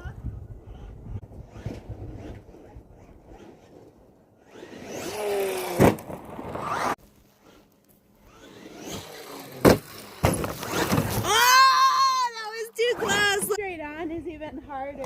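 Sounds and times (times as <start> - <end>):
rc car motor and tyres: 0.0 - 11.6.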